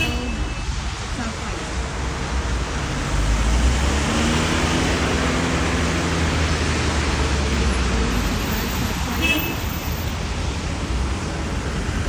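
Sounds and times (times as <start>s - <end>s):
traffic engine hum: 0.0s - 12.0s
wind rushing over microphone: 10.1s - 12.0s.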